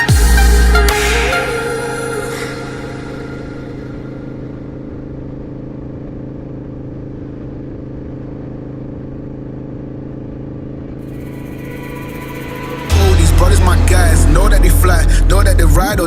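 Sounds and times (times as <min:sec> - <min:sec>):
car engine hum: 0:00.0 - 0:16.0.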